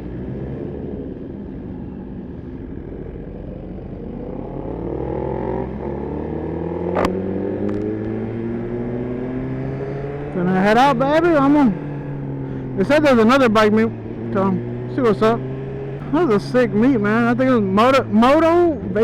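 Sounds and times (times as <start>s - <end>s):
motorcycle engine pulling away: 0.0s - 12.8s, 13.6s - 19.0s
sharp click: 7.0s - 7.9s.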